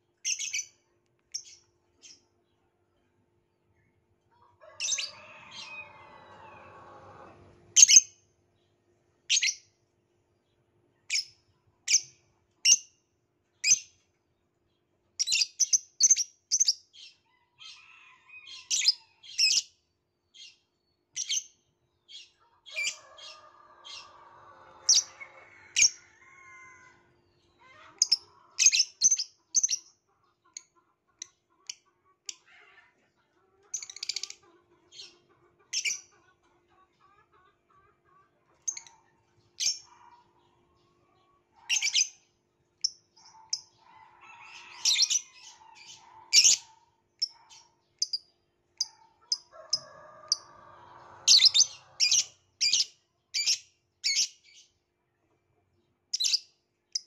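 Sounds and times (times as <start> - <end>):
lovebird chirping: 51.2 - 54.6, 56.1 - 57.0.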